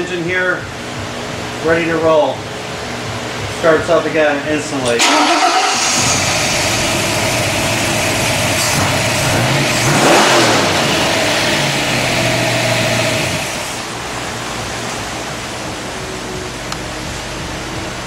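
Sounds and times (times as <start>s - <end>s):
engine running and revving: 5.7s - 13.9s.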